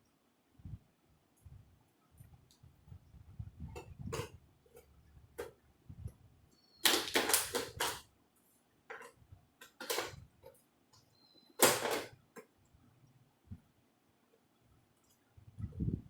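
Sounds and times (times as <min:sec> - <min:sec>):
plastic clicking and scraping: 0:06.8 - 0:08.1, 0:08.9 - 0:10.6.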